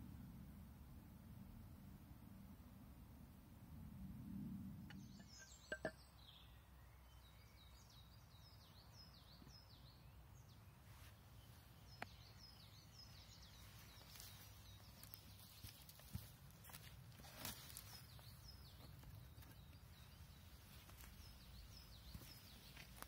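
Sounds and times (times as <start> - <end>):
small bird chirping: 4.9 - 23.0.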